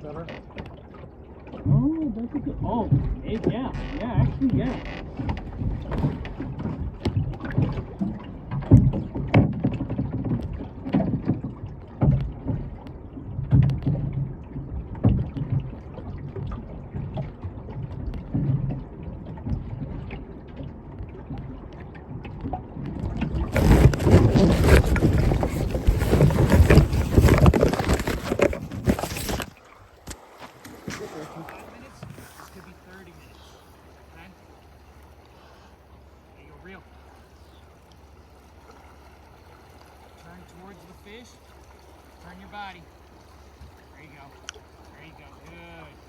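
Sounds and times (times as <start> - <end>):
water sloshing: 0.0 - 46.0
knocks against boat hull: 2.6 - 12.8.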